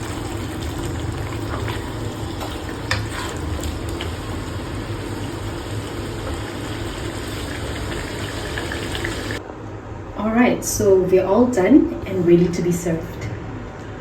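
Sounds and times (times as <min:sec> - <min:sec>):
curry simmering and sizzling: 0:00.0 - 0:09.4.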